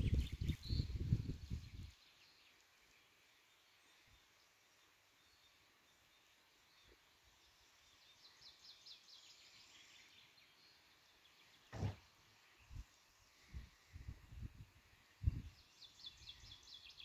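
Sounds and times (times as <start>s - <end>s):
faint bird song: 0.0s - 17.0s.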